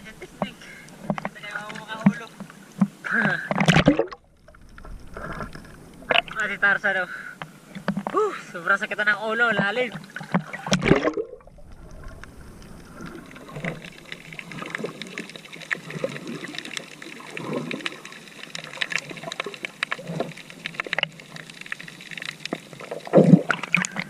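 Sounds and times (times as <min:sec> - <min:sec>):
water splashing and trickling: 0:00.0 - 0:07.0, 0:07.6 - 0:24.0.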